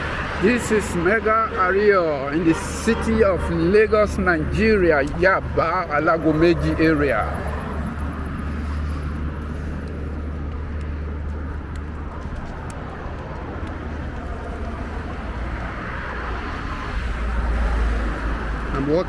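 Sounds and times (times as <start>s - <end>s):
road traffic rumble: 0.0s - 19.0s
outdoor hum: 4.3s - 18.7s.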